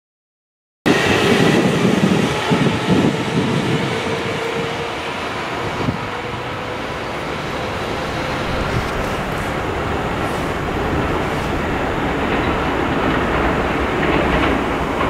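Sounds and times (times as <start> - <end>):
steady train tone: 1.0 - 14.5
train wheels clacking on rail joints: 12.0 - 15.0.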